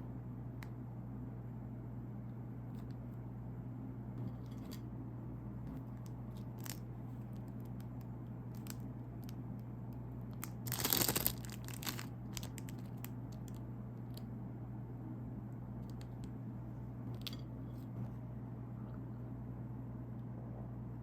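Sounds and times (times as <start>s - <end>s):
plastic wrapper crinkling: 5.8s - 9.4s, 10.3s - 14.2s
wrapper tearing: 6.3s - 6.8s, 8.6s - 8.8s, 10.4s - 13.6s.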